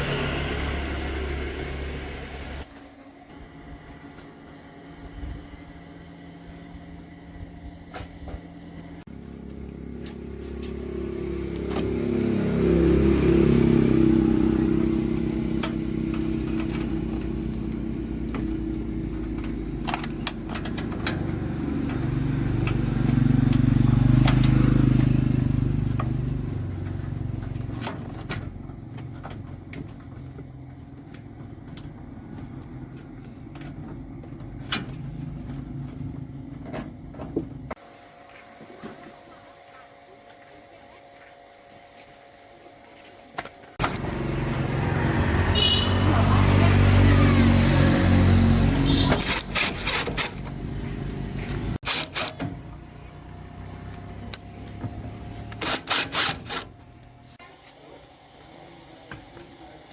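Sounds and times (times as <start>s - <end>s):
machine motor running: 0.0s - 2.7s, 43.8s - 59.9s.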